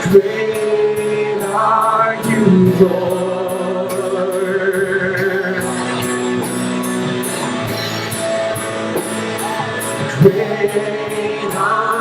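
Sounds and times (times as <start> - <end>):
steady beat: 2.2 - 3.3
guitar strumming: 2.2 - 3.7
live band playing: 2.2 - 3.7.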